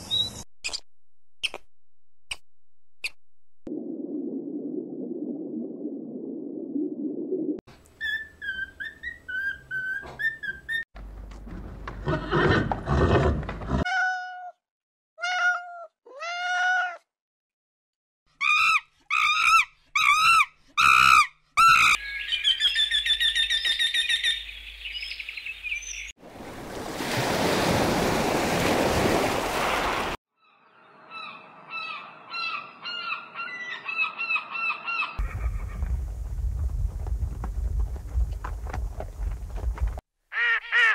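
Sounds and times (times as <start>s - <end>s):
bird chirps: 0.0s - 0.8s, 8.0s - 10.8s, 21.7s - 26.1s.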